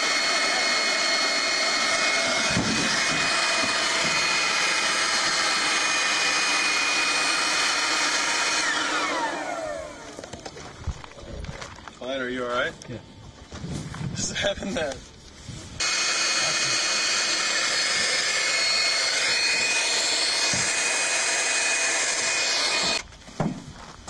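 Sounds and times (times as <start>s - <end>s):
electric blower running: 0.0s - 11.2s, 15.8s - 23.1s
motor spinning down: 0.0s - 11.2s, 15.8s - 23.0s.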